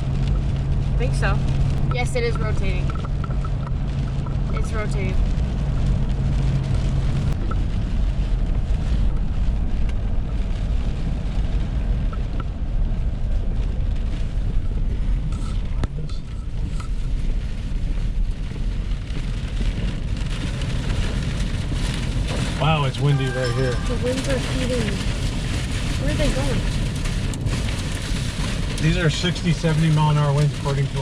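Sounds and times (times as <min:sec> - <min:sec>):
gusting storm wind: 0:00.0 - 0:31.0
rain: 0:00.0 - 0:31.0.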